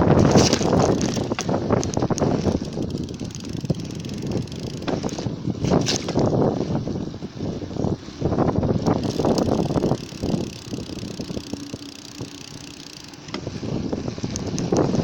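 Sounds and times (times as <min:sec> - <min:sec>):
wind buffeting microphone: 0:00.0 - 0:15.0
faint ticks: 0:00.6 - 0:05.3, 0:08.8 - 0:13.5, 0:14.2 - 0:15.0.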